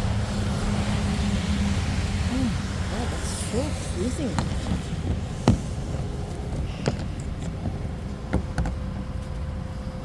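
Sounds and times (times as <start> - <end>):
sharp knocks: 4.4 - 6.1.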